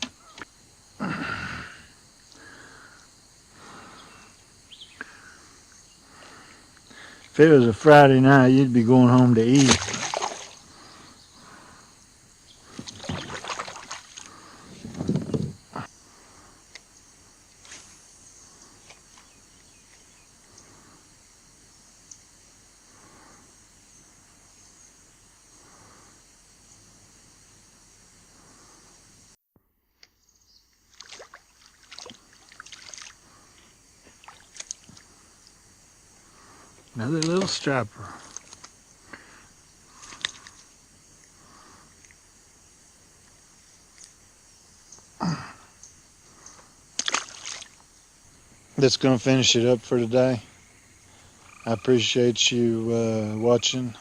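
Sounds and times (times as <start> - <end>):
insect chirring: 0.0 - 54.0
water splashing around kayak: 9.2 - 11.6, 12.6 - 15.1, 30.9 - 35.2, 46.9 - 48.0
paddle strokes: 9.2 - 11.7, 12.6 - 15.8, 30.9 - 35.2, 36.4 - 42.2.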